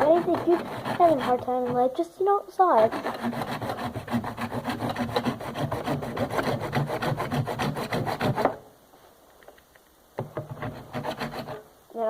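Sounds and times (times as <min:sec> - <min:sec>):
hand saw rasping: 0:00.0 - 0:01.8, 0:02.8 - 0:08.6, 0:10.4 - 0:11.6.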